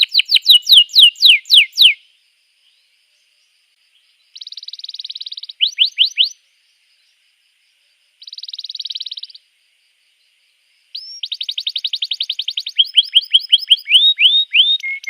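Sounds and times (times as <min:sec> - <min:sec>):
canary singing trills and whistles: 0:00.0 - 0:02.0, 0:04.3 - 0:06.4, 0:08.2 - 0:09.4, 0:11.0 - 0:15.0.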